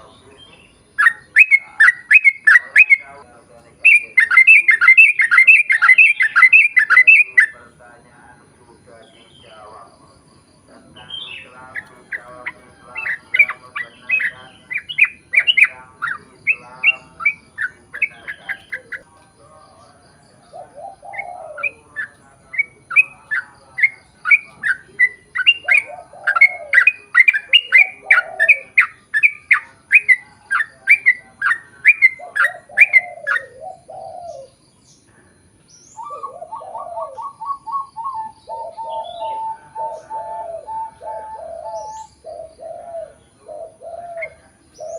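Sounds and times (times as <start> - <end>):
bird chattering song: 0.0 - 44.9
lower repeated bird calls: 0.0 - 44.9.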